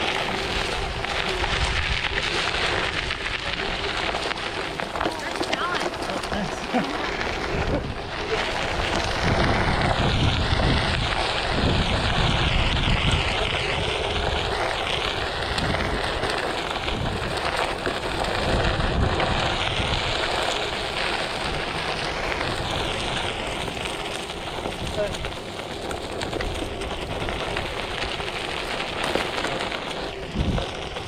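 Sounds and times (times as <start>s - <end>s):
wind buffeting microphone: 0.0s - 29.3s, 29.9s - 31.0s.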